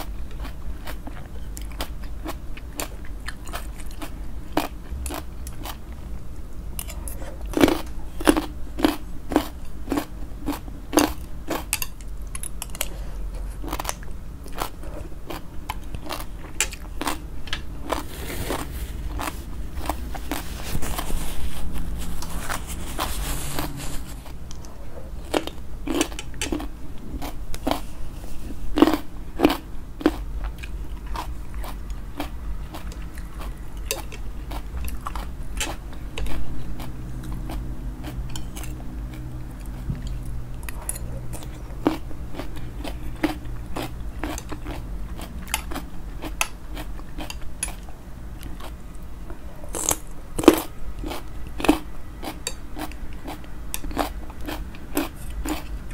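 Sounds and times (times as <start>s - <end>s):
crunching and chewing salad: 0.0s - 55.9s.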